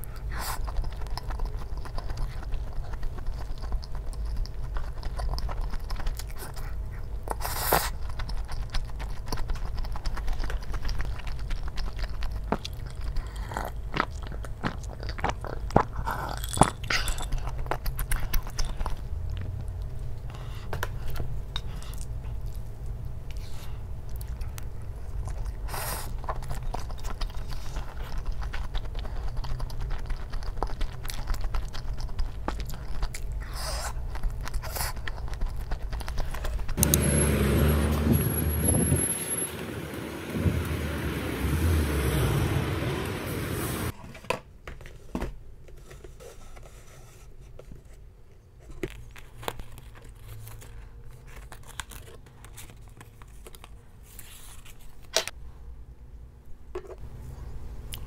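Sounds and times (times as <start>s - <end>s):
close chewing and biting: 0.0s - 39.0s, 48.6s - 55.4s.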